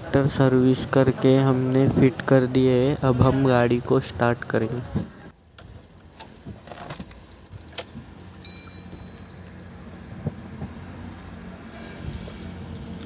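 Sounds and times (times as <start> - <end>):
key and ignition clicks: 6.7 - 9.6.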